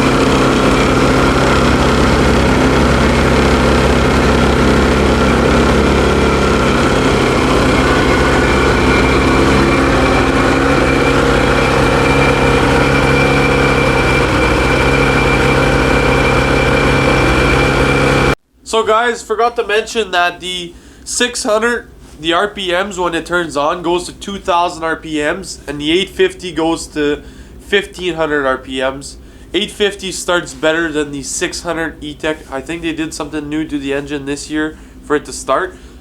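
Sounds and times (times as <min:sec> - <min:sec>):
snowmobile engine idling: 0:00.0 - 0:18.4.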